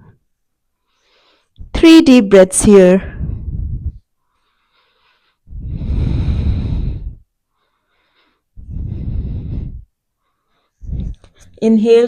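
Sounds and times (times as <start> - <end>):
person breathing deeply: 3.1 - 11.5.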